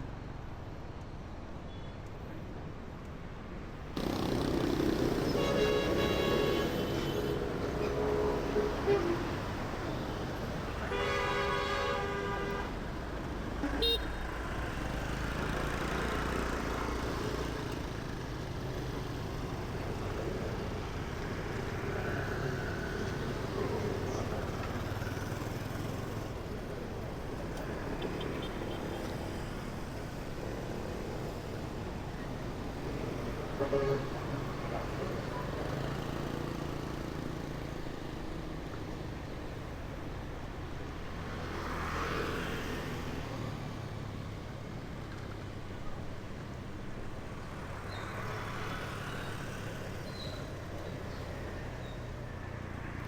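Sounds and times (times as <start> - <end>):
city street traffic: 0.0 - 53.0
vehicle horn: 5.2 - 9.4, 10.8 - 12.7, 13.6 - 14.3, 33.5 - 34.3.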